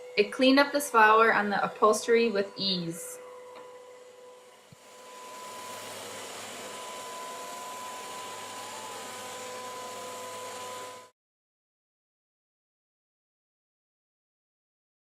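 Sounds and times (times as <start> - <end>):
vacuum cleaner running: 0.0 - 11.2.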